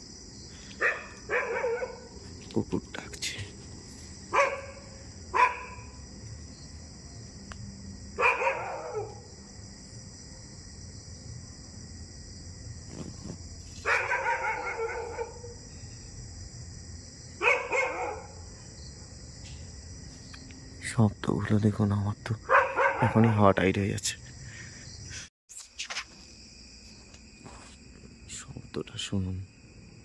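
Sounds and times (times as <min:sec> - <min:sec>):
dog barking: 0:00.8 - 0:02.2, 0:04.3 - 0:06.0, 0:08.2 - 0:09.3, 0:13.8 - 0:15.6, 0:17.4 - 0:18.4, 0:22.4 - 0:23.4.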